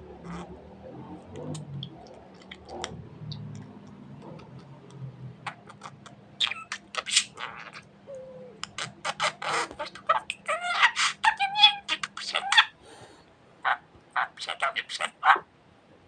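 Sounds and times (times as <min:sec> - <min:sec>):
high budgerigar chirps: 0:05.5 - 0:12.8, 0:13.6 - 0:15.4.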